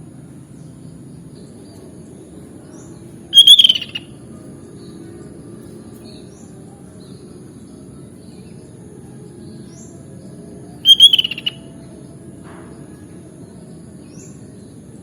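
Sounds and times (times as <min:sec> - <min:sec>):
faint high rising chirps: 0:03.3 - 0:04.0, 0:10.8 - 0:11.9
bird call notes: 0:03.3 - 0:04.1, 0:10.8 - 0:11.7.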